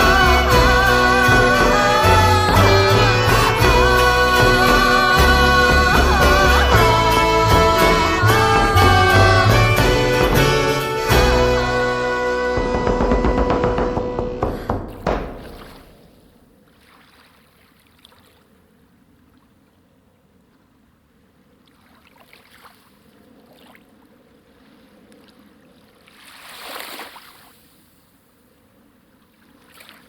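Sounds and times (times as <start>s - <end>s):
music: 0.0s - 15.4s
water lapping and splashing: 15.3s - 18.6s, 21.6s - 27.9s, 29.2s - 30.0s.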